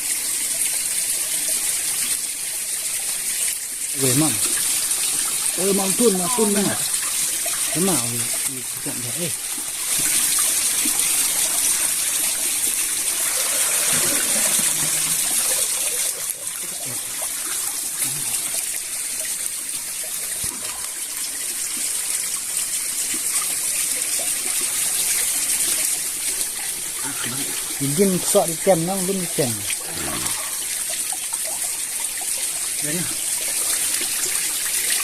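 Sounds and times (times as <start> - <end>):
stream water rushing: 3.9 - 19.0, 24.2 - 35.0.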